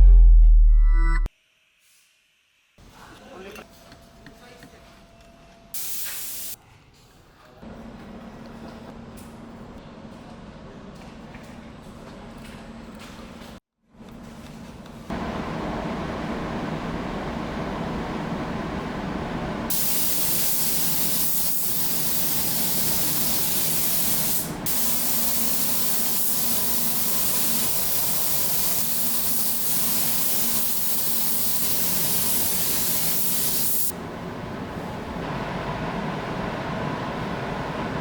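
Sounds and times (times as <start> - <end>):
paint spray gun hissing: 5.8 - 6.6, 19.7 - 33.9.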